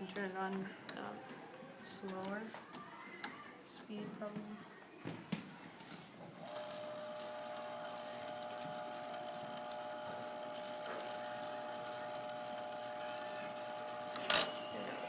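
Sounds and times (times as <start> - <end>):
small motor humming and whirring: 6.4 - 15.0.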